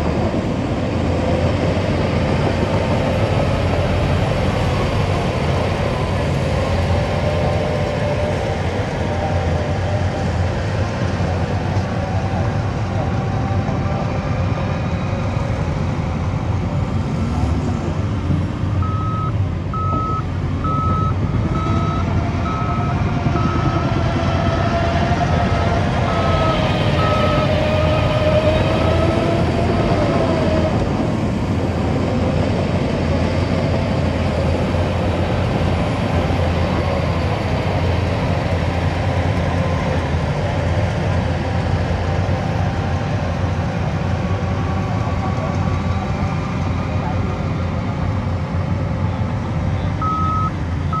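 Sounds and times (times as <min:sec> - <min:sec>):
diesel earthmoving machinery running: 0:00.0 - 0:51.0
reversing alarm beeping: 0:18.8 - 0:23.8, 0:26.0 - 0:27.6, 0:50.0 - 0:51.0.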